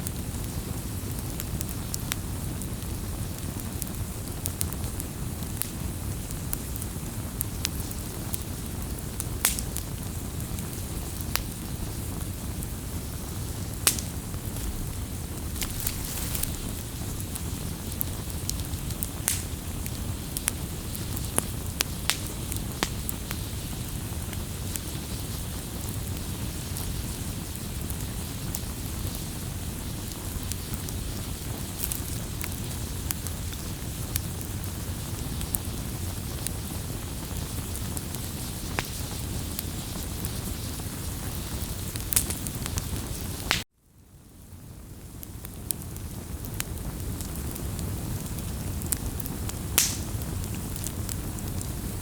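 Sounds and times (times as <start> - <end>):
fire crackling and popping: 0.0 - 52.0
rush of bonfire flames: 0.0 - 52.0.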